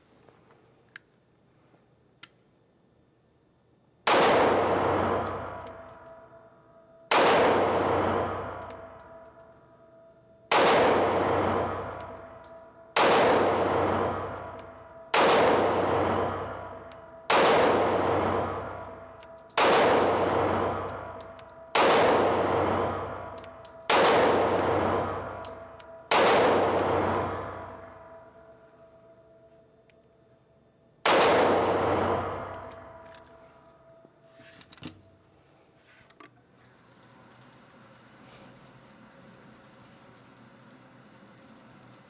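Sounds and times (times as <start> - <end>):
pistol shots echoing: 4.0 - 6.2, 7.1 - 9.4, 10.5 - 28.5, 31.0 - 33.5.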